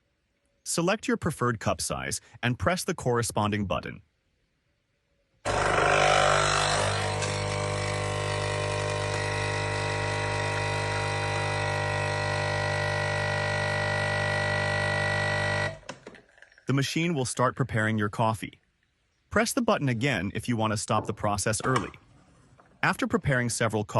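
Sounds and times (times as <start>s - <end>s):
coffee machine pump humming: 5.5s - 16.7s.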